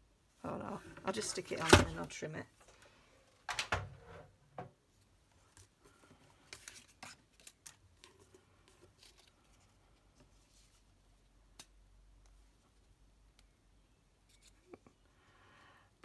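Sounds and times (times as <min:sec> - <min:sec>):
paper and card rustling: 0:00.7 - 0:02.2, 0:05.4 - 0:10.9.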